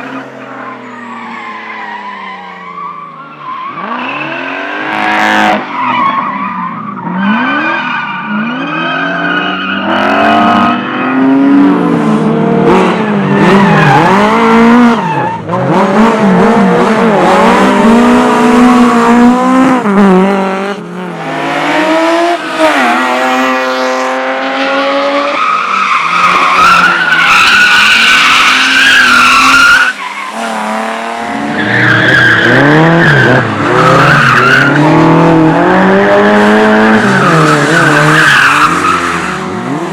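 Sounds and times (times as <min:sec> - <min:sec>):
car engine revving hard: 0:09.8 - 0:39.9
tyre squeal: 0:25.2 - 0:35.0.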